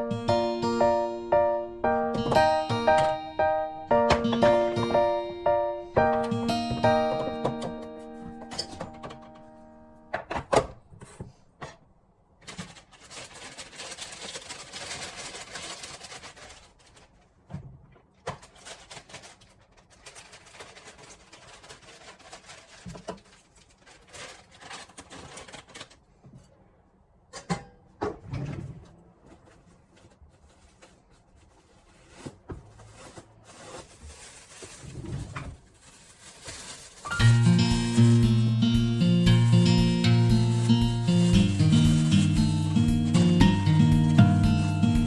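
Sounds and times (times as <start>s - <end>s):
rustling or scraping: 12.4s - 17.5s, 18.3s - 26.6s, 28.4s - 43.4s.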